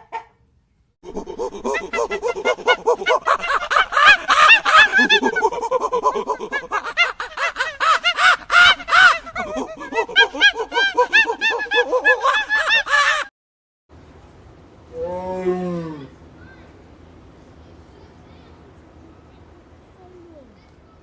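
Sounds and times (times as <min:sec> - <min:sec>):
flock of birds calling: 0:01.3 - 0:11.6.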